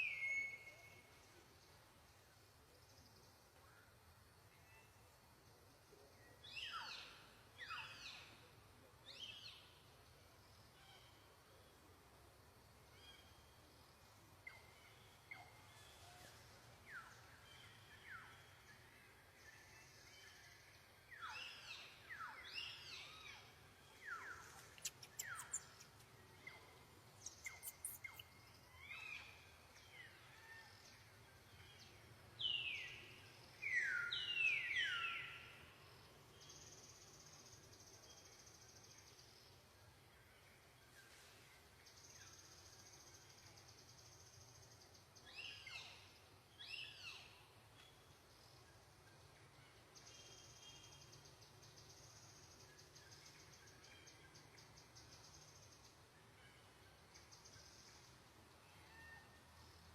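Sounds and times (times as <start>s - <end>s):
faint steady background hiss: 0.0s - 59.9s
high downward-sweeping animal chirps: 24.3s - 26.1s, 27.2s - 28.3s.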